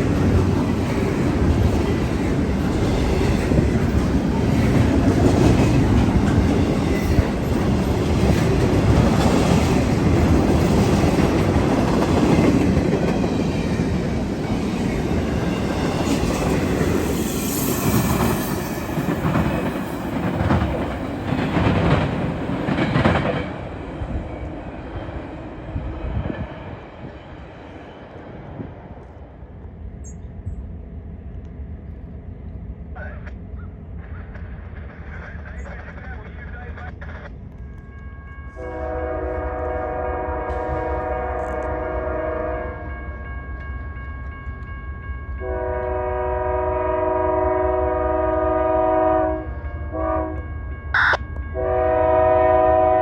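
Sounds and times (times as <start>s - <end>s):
freight train rumbling: 0.0s - 53.0s
train wheels clacking on rail joints: 17.9s - 23.9s.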